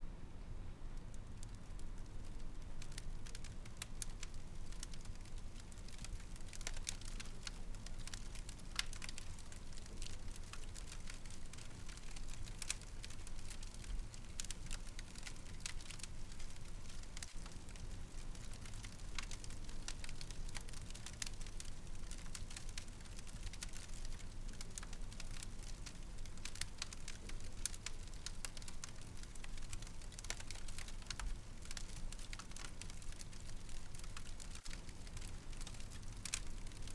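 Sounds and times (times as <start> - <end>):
low steady rumble: 0.0 - 6.4
fire crackling and popping: 1.0 - 36.9.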